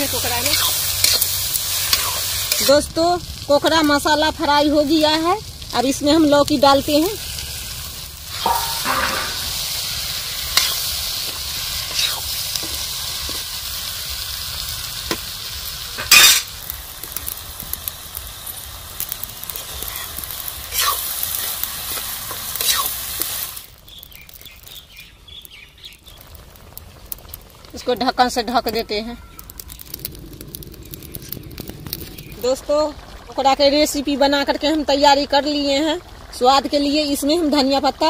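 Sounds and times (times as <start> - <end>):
vegetables sizzling in a pan: 0.0 - 38.0
metal spatula scraping a pan: 8.3 - 9.9, 16.0 - 16.5.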